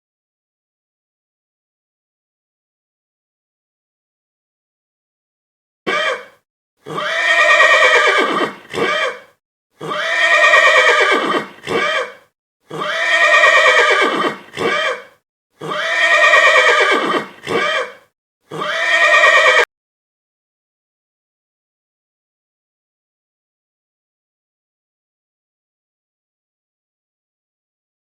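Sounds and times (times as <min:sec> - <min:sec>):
horse whinnying: 0:05.9 - 0:19.7.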